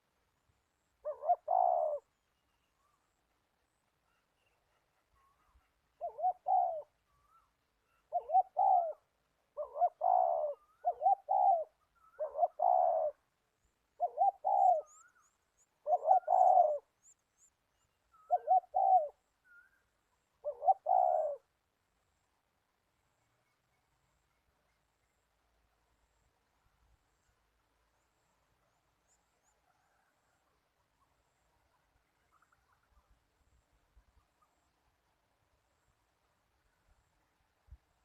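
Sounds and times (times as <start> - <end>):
dove cooing: 1.0 - 2.1, 6.0 - 7.0, 8.0 - 13.2, 14.0 - 15.1, 15.8 - 16.9, 18.2 - 19.2, 20.4 - 21.5.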